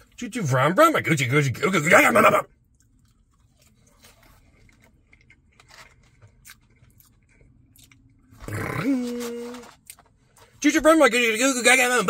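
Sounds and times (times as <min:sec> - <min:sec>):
chewing with wet mouth clicks: 0:02.6 - 0:08.3.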